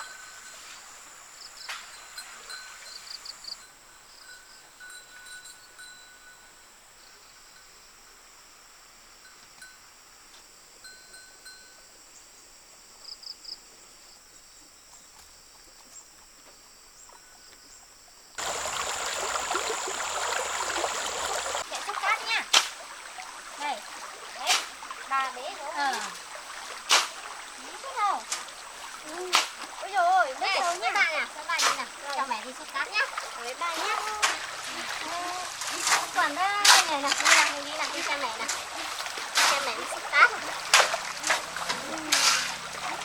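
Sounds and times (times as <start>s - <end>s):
high-pitched insect drone: 18.4s - 22.4s
rushing water: 18.4s - 43.0s.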